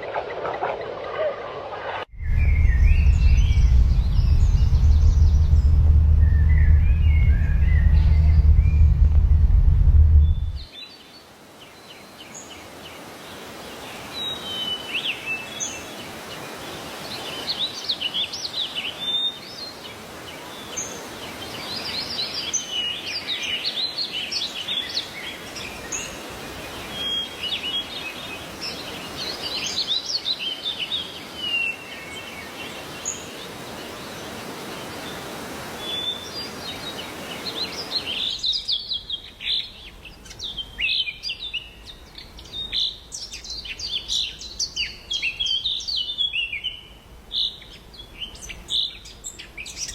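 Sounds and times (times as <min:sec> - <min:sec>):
loud low rumble: 0:02.1 - 0:10.7.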